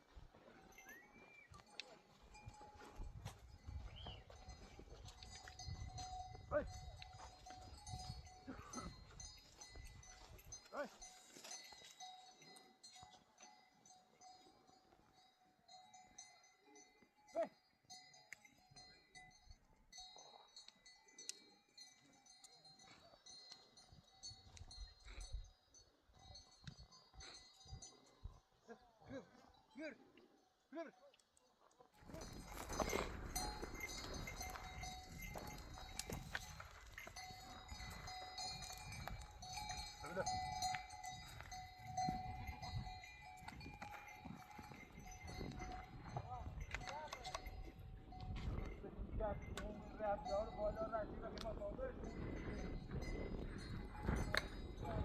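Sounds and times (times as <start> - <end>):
livestock neck bells tinkling: 0.0 - 55.0.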